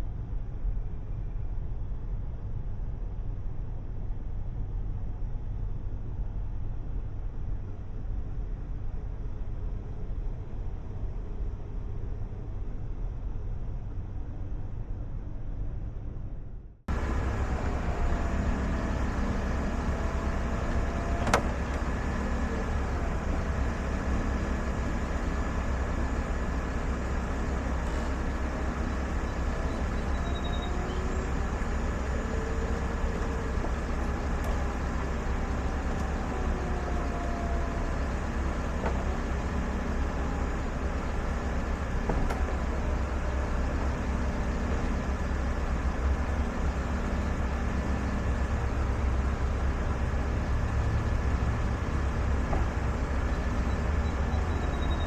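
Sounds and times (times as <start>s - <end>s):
motors whining: 16.9s - 55.0s.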